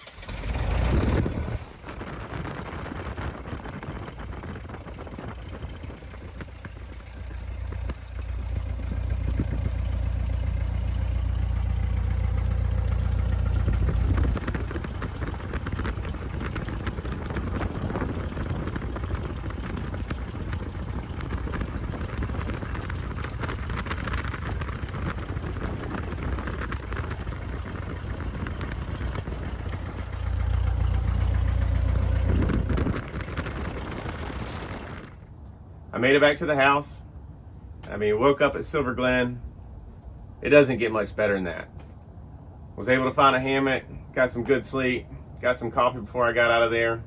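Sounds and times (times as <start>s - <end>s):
seaplane engine and propeller running: 3.1s - 35.1s.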